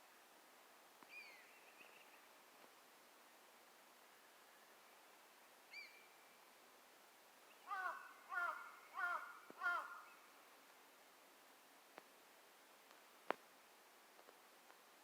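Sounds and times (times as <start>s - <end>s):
bird calling: 5.7s - 6.1s, 7.6s - 10.2s.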